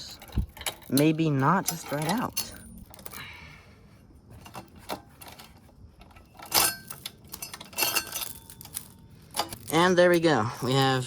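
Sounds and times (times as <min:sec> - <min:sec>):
metallic clicks: 0:00.0 - 0:03.2
chain clinking and rattling: 0:00.0 - 0:11.0.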